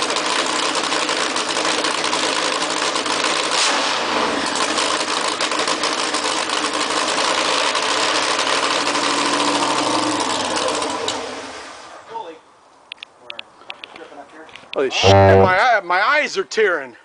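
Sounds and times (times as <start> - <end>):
engine running loud at fast idle: 0.0 - 11.1.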